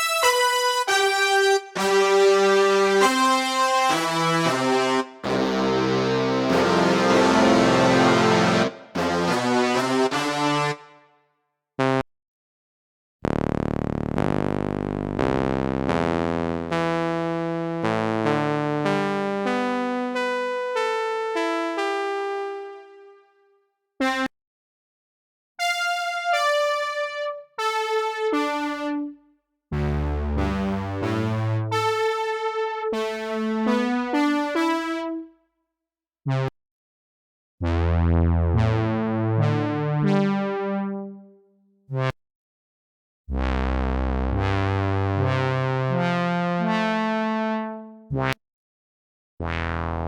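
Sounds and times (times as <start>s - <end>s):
synthesizer keyboard phrases: 0.0s - 10.7s, 25.7s - 29.1s, 29.8s - 35.2s
synth bass line: 1.0s - 10.8s, 29.7s - 32.3s
synth stabs: 3.9s - 10.8s.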